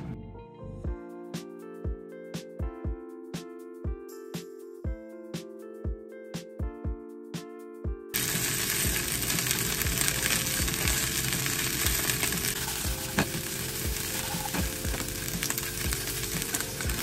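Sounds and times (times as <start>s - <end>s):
hot oil sizzling: 8.2s - 17.0s.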